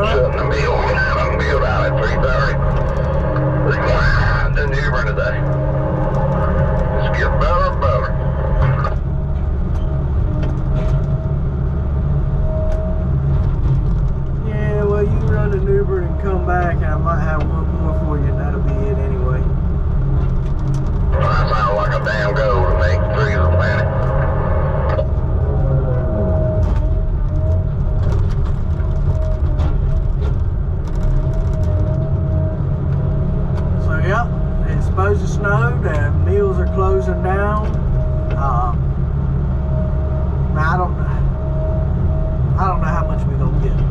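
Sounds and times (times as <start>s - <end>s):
wavering whine: 0.0s - 19.8s, 20.8s - 43.8s
engine low rumble: 0.0s - 43.9s.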